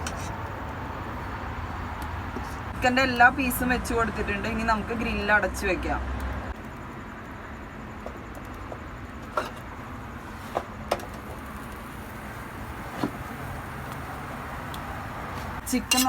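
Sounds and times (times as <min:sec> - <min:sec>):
chicken grilling over fire: 0:10.2 - 0:16.0.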